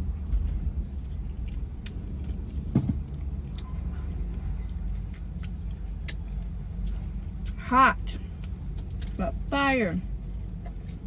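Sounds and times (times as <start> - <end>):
person chewing crispy food: 0.0 - 3.6, 4.7 - 7.6.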